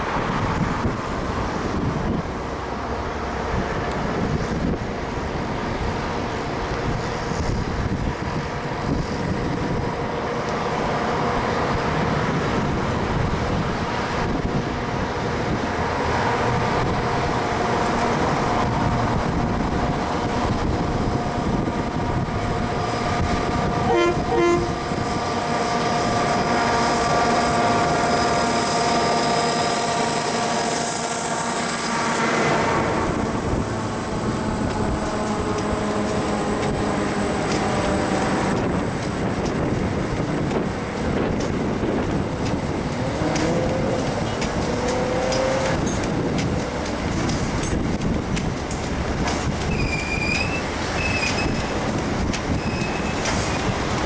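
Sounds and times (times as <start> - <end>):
diesel locomotive engine under load: 0.0 - 54.0
train horn toot: 23.8 - 25.0
wagons clicking over rail joints: 34.6 - 54.0.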